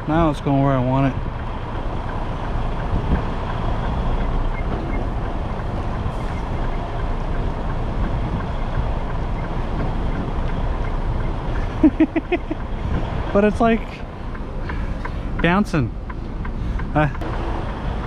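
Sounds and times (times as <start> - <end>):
diesel truck engine rumbling: 0.0 - 18.0.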